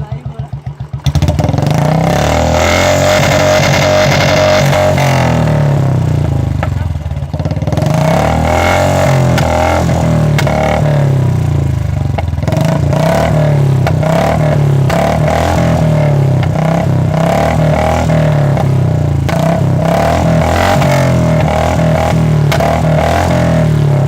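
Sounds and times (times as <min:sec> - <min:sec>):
motorcycle exhaust running: 0:00.0 - 0:24.0
exhaust cracks and pops: 0:10.3 - 0:10.6.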